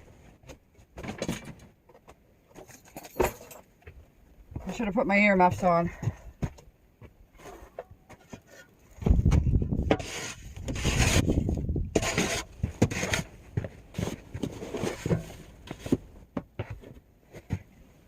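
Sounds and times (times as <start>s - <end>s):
snow shovel scraping snow: 9.9s - 13.3s.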